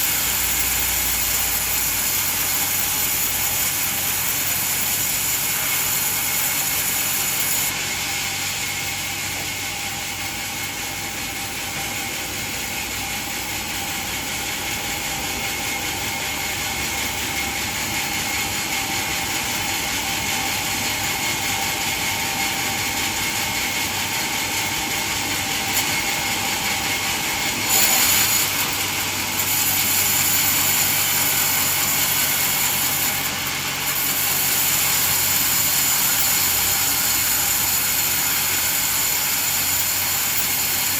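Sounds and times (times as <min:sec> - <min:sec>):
high machine whine: 0:00.0 - 0:40.9
band saw sawing wood: 0:25.1 - 0:40.9.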